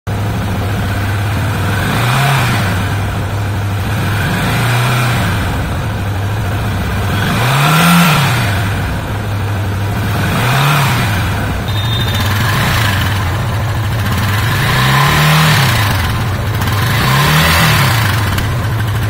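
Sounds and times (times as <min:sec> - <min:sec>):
motorcycle engine idling: 0:00.1 - 0:19.0
throttle blip: 0:11.6 - 0:12.8.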